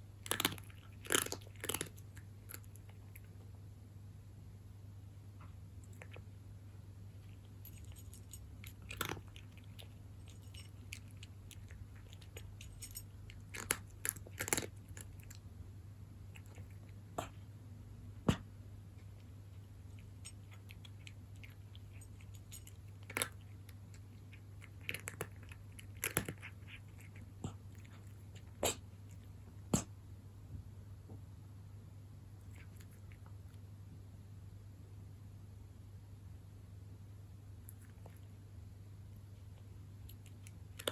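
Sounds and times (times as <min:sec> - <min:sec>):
cat crunching dry kibble: 0:00.0 - 0:03.5, 0:05.8 - 0:06.3, 0:07.1 - 0:15.5, 0:16.3 - 0:17.4, 0:18.4 - 0:29.9, 0:39.2 - 0:40.9
steady low hum: 0:00.0 - 0:40.9.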